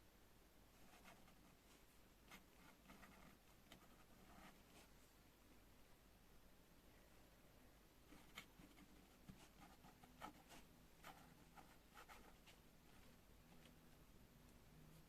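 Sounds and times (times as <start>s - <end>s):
pen scratching on paper: 2.3s - 4.9s, 8.1s - 13.1s.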